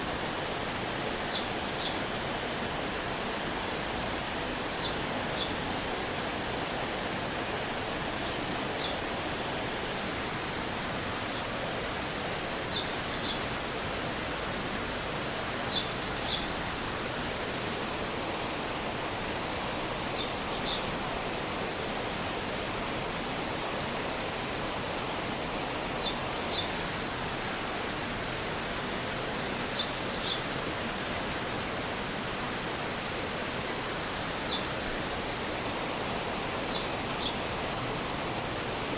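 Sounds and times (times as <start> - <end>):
stream running: 0.0 - 38.9.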